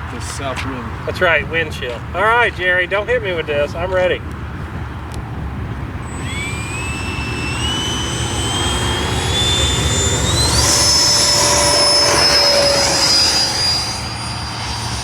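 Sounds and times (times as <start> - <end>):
electric ducted fan whine: 5.4 - 15.0.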